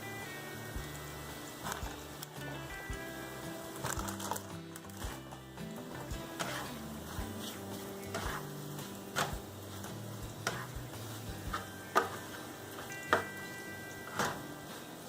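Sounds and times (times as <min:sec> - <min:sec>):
light sizzle: 0:00.0 - 0:15.0
soft background music: 0:00.0 - 0:15.0
spatula stirring eggs in a pan: 0:03.7 - 0:14.8.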